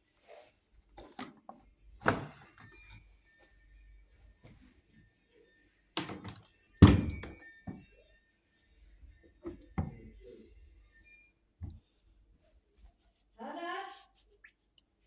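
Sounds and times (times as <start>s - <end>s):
washing machine door knocks: 6.0s - 7.8s, 9.5s - 10.1s.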